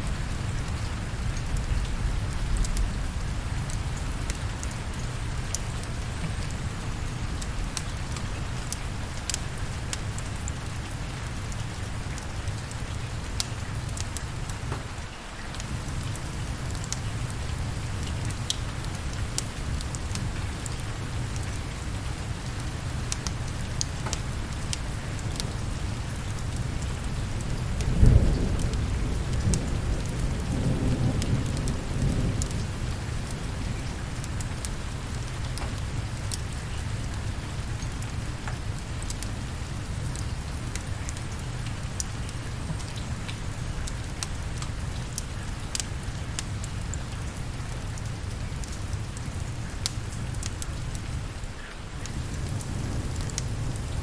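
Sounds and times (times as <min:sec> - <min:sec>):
steady rain: 0:00.0 - 0:54.0
thunder rumbling: 0:27.5 - 0:33.8, 0:52.0 - 0:54.0.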